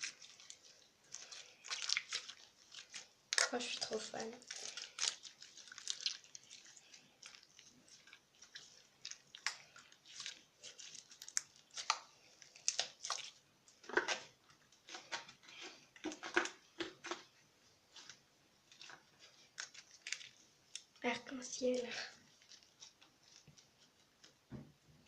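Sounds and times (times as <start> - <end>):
slime squelching: 0.0 - 24.5.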